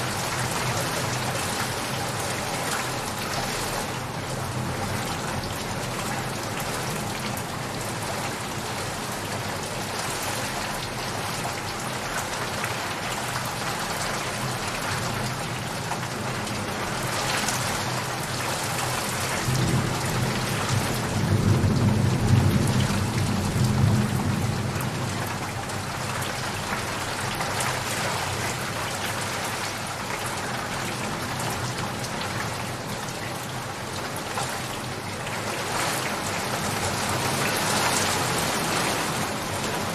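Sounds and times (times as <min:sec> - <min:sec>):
heavy rain: 0:00.0 - 0:39.9
thunder rumbling: 0:19.4 - 0:25.0.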